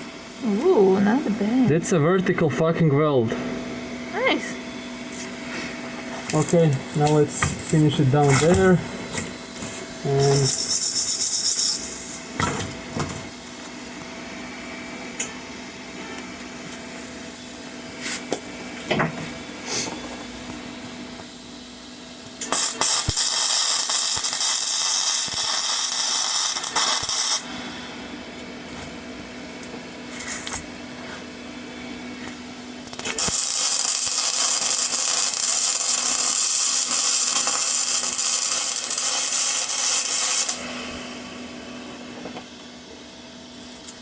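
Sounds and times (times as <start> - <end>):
steady low hum: 0.0 - 44.0
welding arc hissing: 6.2 - 12.8, 22.4 - 28.1, 32.8 - 41.0, 43.5 - 44.0.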